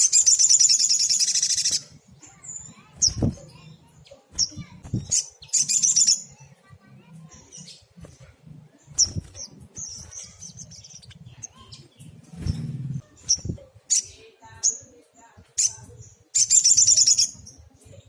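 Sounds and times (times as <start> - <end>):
bird high chirps: 0.0 - 18.0
fluttering or rustling: 12.1 - 13.6.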